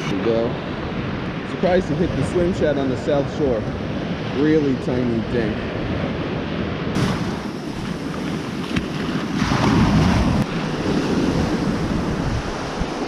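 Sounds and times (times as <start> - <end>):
ocean surf washing on beach: 0.0 - 13.0
wind buffeting microphone: 0.0 - 13.0.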